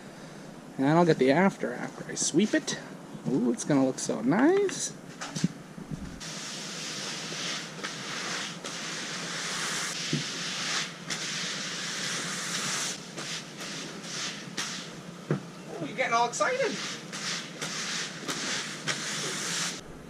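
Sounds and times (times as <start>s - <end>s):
broom sweeping a floor: 6.1s - 15.0s, 16.4s - 19.8s.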